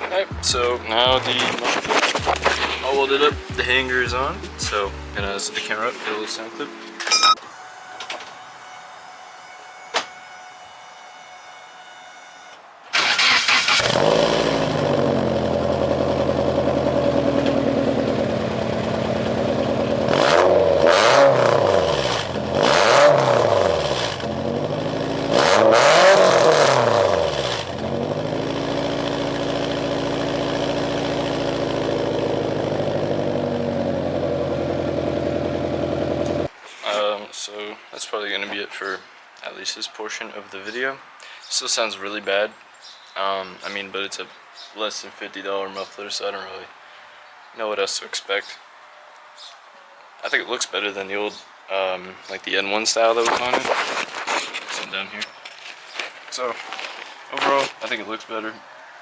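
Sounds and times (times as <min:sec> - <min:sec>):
car engine starting: 0:00.3 - 0:05.4, 0:13.0 - 0:36.5
car engine idling and revving: 0:02.2 - 0:05.4, 0:13.4 - 0:36.5.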